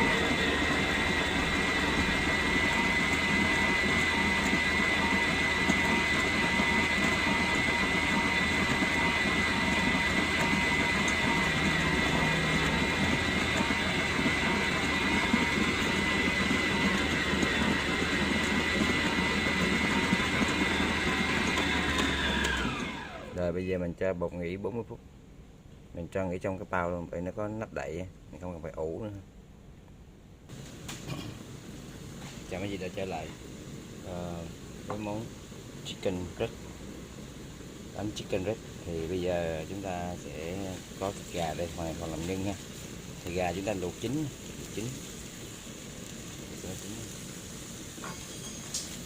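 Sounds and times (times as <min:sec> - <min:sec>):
electric mixer motor whining: 0:00.0 - 0:23.4.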